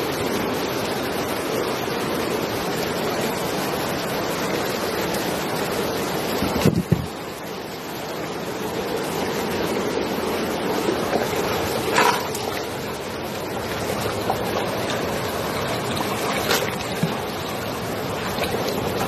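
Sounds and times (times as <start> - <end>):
flowing water rushing: 0.0 - 19.0
sharp splashes: 14.8 - 19.0.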